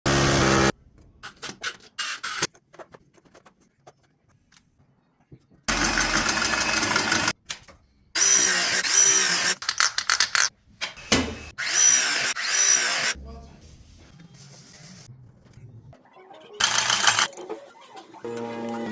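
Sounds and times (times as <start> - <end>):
power tool motor: 0.1 - 0.7, 5.7 - 7.3, 8.2 - 9.6.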